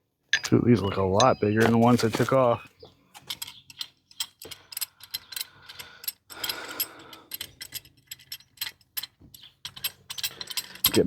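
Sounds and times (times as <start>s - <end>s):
metallic tool clicks and rattles: 3.2s - 11.0s.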